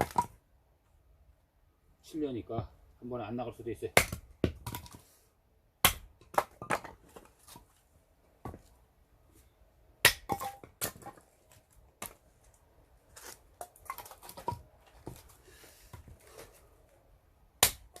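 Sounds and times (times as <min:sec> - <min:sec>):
axe striking wood: 0:04.0 - 0:05.0, 0:05.8 - 0:07.0, 0:10.0 - 0:11.2, 0:17.6 - 0:18.0
split wood cracking and clattering: 0:10.1 - 0:12.6, 0:13.2 - 0:15.4.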